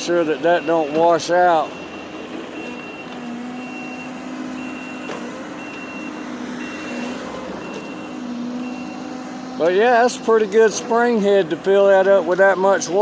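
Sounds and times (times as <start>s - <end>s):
reversing alarm beeping: 0.0s - 9.3s
diesel engine running: 0.0s - 13.0s.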